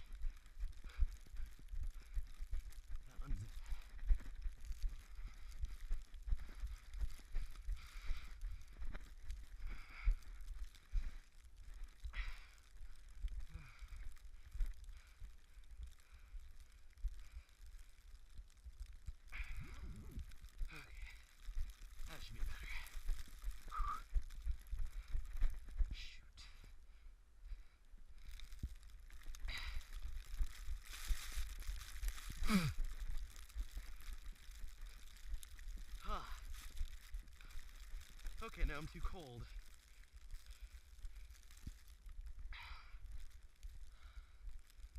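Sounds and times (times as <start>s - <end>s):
runner breathing heavily: 0.0s - 44.9s
groan falling in pitch: 32.4s - 32.8s.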